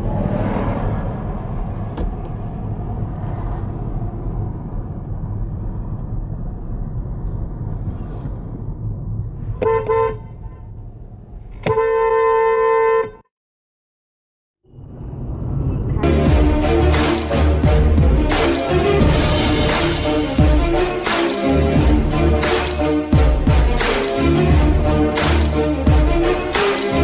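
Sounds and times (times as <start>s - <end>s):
low road rumble: 0.0s - 13.0s, 14.6s - 27.0s
car horn honking: 9.6s - 10.4s, 11.6s - 13.2s.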